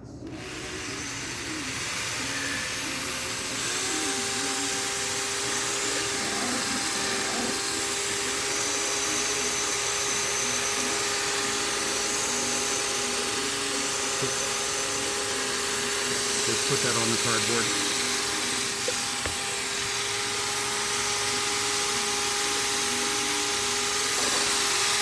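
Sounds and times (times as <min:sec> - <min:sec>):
electric drill motor humming: 0:00.1 - 0:25.0.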